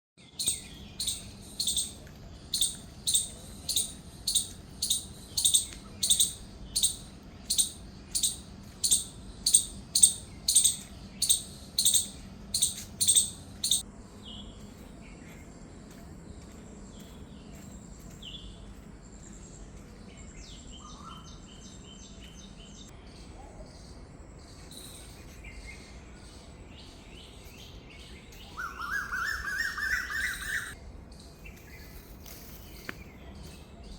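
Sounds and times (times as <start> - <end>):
faint bird chirps: 0.3 - 14.6, 23.2 - 30.8.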